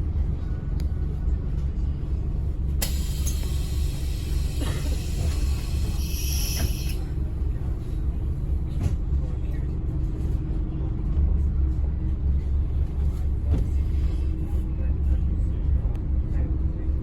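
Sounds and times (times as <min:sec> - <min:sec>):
bus diesel engine rumble: 0:00.0 - 0:17.0
click: 0:02.8 - 0:03.5.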